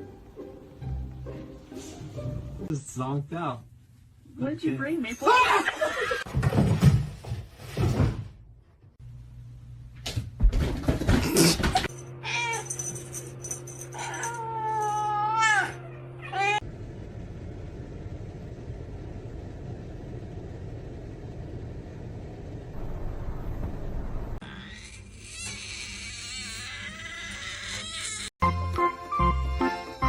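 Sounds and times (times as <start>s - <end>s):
cat meowing: 14.1s - 16.6s.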